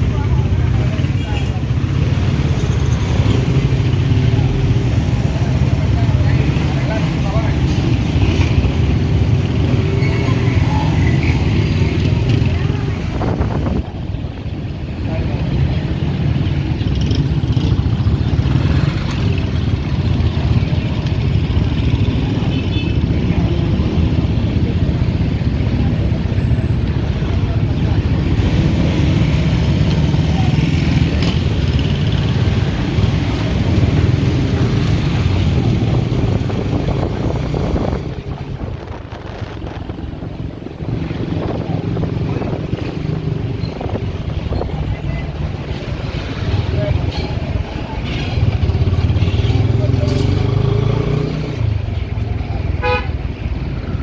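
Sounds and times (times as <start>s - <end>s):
road and wind noise: 0.0s - 54.0s
motorcycle engine: 14.8s - 54.0s
wind buffeting microphone: 32.6s - 47.7s.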